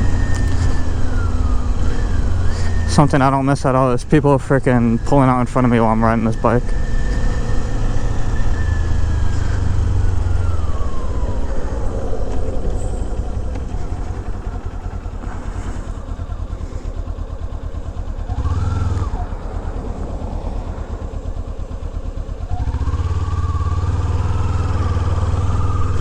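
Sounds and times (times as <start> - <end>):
motorcycle engine running: 0.0 - 26.0
wind rushing on microphone: 18.3 - 23.1.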